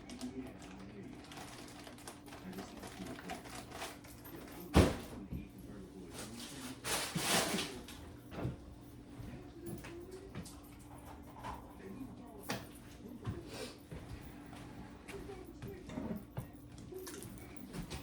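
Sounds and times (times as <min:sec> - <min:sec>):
objects clattering: 0:06.3 - 0:08.6.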